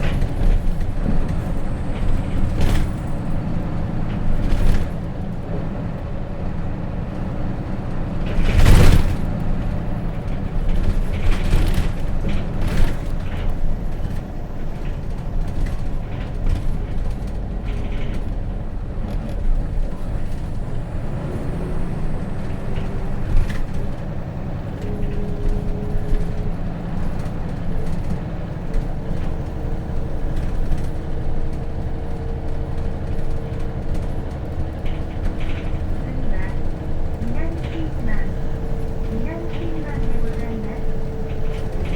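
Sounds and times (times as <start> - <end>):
bus diesel engine rumbling: 0.0 - 41.9
knocks and rattles: 30.2 - 41.9.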